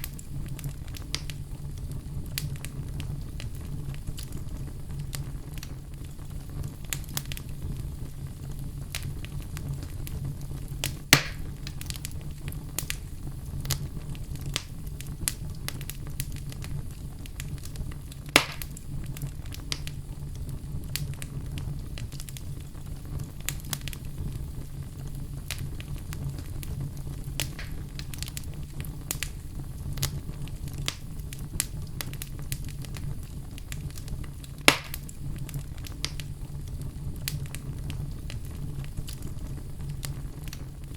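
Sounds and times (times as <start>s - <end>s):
loud fire pops: 0.0s - 40.9s
wood fire crackling: 0.0s - 40.9s.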